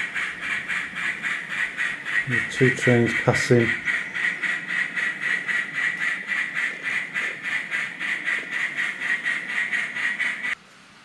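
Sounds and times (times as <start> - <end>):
train wheels clicking on track: 0.0 - 10.6.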